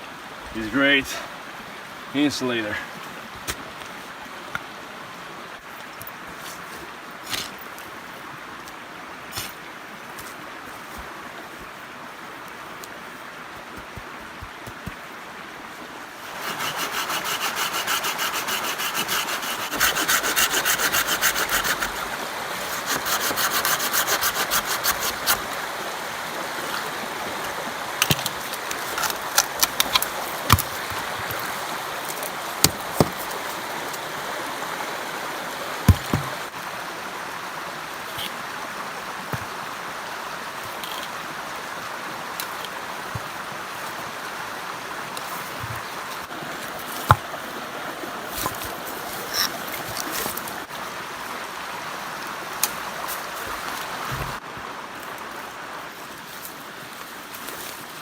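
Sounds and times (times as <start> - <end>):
hand tool rasping: 16.2 - 25.5, 48.4 - 50.4
sharp knocks and clicks: 35.9 - 36.4.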